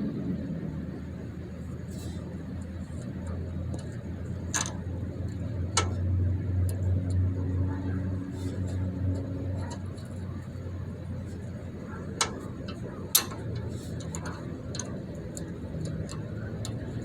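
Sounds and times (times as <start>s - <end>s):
steady low hum: 0.0s - 17.0s
hand tools clicking on metal: 2.9s - 7.2s, 8.0s - 17.0s.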